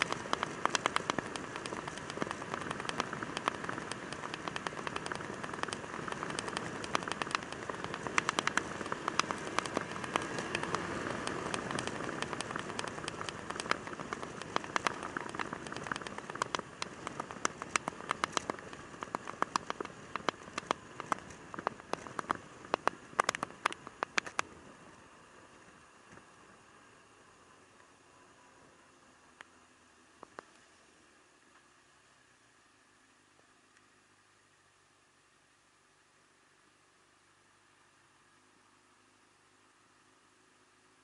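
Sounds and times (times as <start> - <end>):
raindrops ticking: 0.0 - 24.4
steady rushing background: 0.0 - 24.5.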